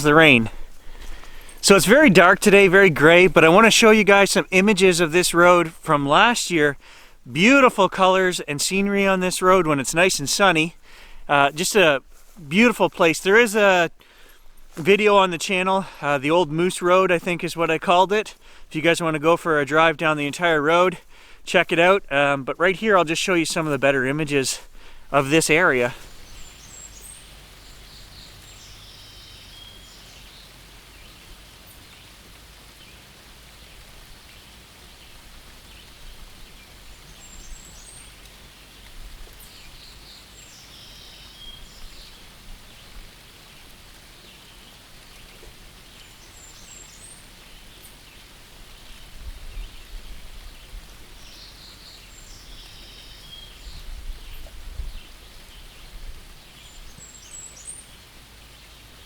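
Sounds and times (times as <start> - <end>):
low rumbles: 0.0 - 5.9
light rain falling: 0.0 - 59.0
bird chirping: 21.8 - 32.2, 35.6 - 38.3, 39.4 - 42.3, 50.6 - 59.0.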